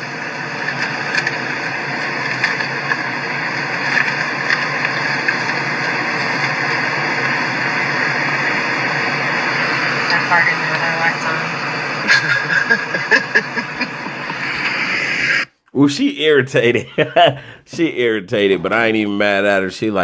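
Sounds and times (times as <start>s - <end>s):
car engine idling: 0.0s - 15.4s
even cabin hiss: 0.0s - 20.0s.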